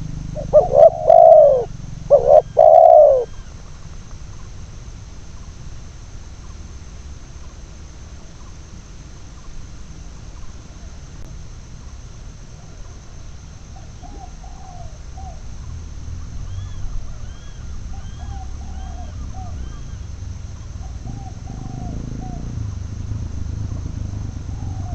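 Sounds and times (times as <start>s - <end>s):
faint high chirps: 0.0s - 3.7s
doves cooing: 0.0s - 4.5s, 12.6s - 24.9s
low rumble: 15.5s - 24.9s.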